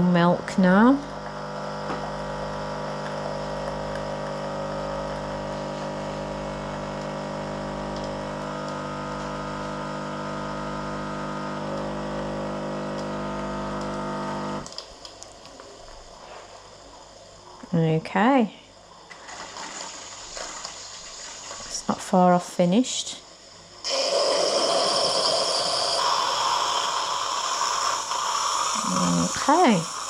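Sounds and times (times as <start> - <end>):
coffee machine pumping milk: 0.2 - 14.8, 19.1 - 22.1, 23.8 - 30.0.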